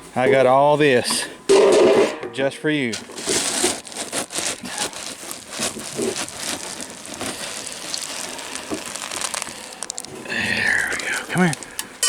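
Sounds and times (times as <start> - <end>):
dry dog food poured into bowl: 3.1 - 11.8.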